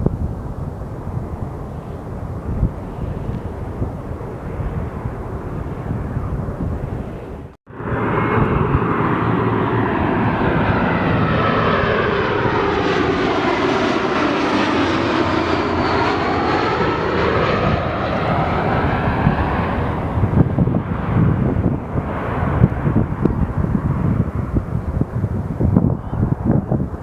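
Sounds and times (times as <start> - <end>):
airliner flying overhead: 0.0 - 27.0.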